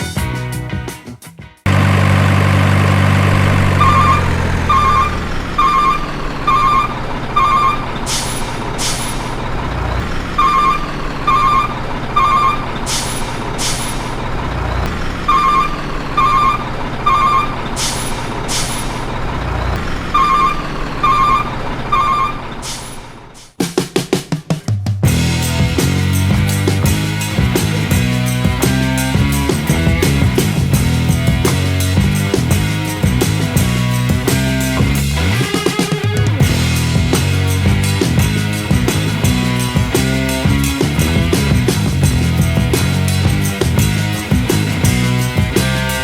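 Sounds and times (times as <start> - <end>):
diesel truck engine running: 1.7 - 22.0
reversing alarm beeping: 3.4 - 8.1, 10.0 - 12.9, 15.3 - 18.3, 20.0 - 22.5.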